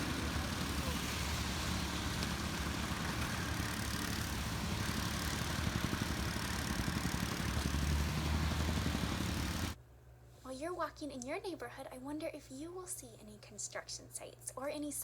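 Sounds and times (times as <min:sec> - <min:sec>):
construction vehicle engine running: 0:00.0 - 0:09.8
outdoor noise: 0:00.0 - 0:09.8.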